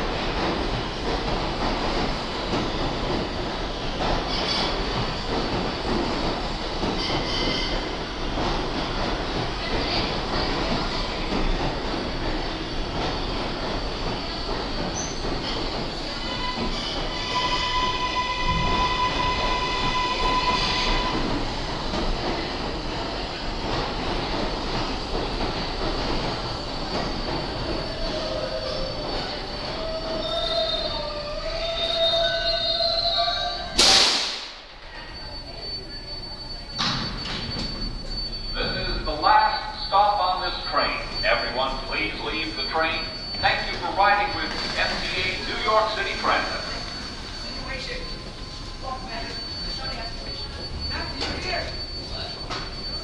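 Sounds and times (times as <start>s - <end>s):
train wheels rumbling on rail: 0.0s - 34.9s, 35.8s - 53.0s
high wheel squeals: 6.9s - 23.4s, 25.3s - 33.8s, 35.0s - 53.0s
high steady tones: 35.2s - 53.0s.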